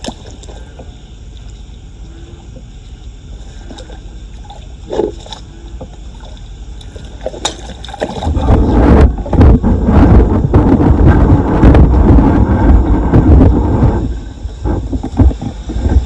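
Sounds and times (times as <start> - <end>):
floodwater sloshing: 0.0 - 1.7, 2.3 - 9.6
loud rough rushing noise: 8.2 - 16.0.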